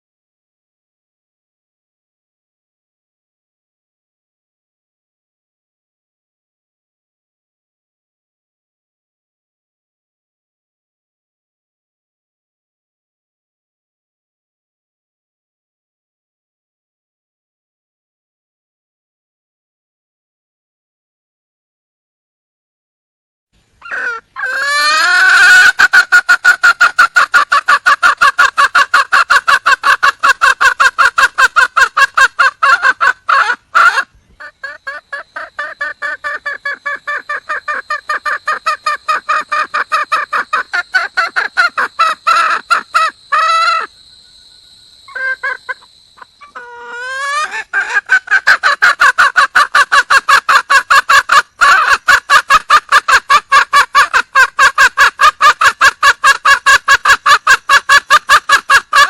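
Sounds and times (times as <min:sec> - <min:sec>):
hen cackling clucks: 0:23.8 - 0:44.0, 0:45.0 - 0:59.0.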